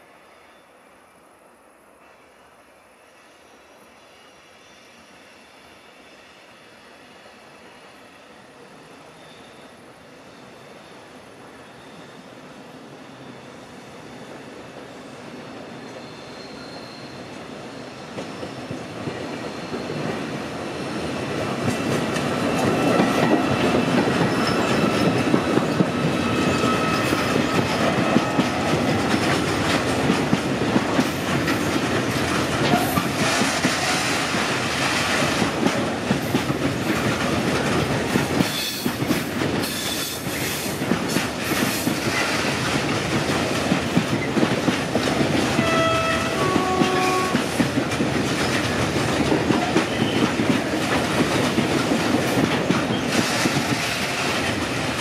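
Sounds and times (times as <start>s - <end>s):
train wheels clattering over rail joints: 21.6s - 55.0s.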